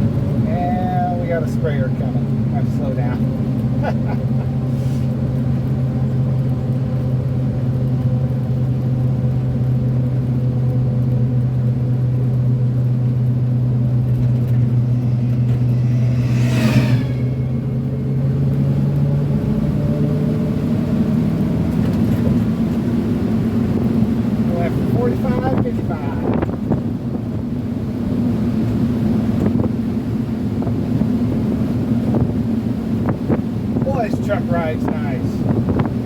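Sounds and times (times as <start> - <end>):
engine droning at cruise: 0.0 - 36.0
passing vehicle whoosh: 13.0 - 20.6.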